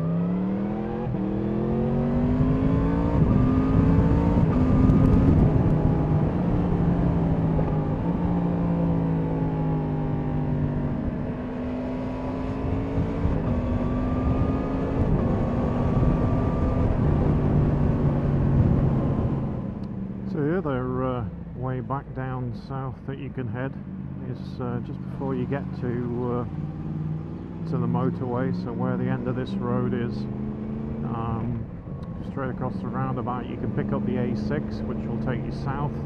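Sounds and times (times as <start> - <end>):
motorcycle engine accelerating: 0.0 - 20.5, 24.8 - 36.0
wind noise: 2.3 - 8.2, 12.5 - 19.7.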